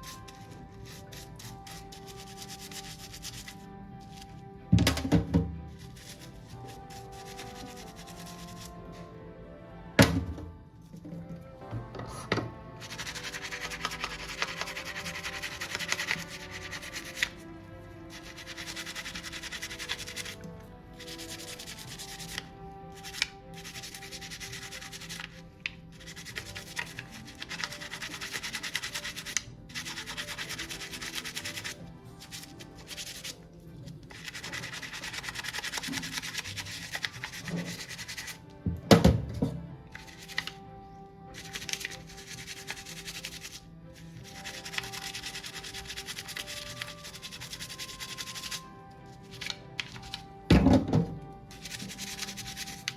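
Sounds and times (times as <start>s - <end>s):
rapid rubbing strokes: 0.0s - 4.3s, 5.7s - 9.0s, 12.8s - 33.4s, 34.0s - 38.4s, 41.4s - 49.6s, 51.5s - 52.9s
soft background music: 0.0s - 52.9s.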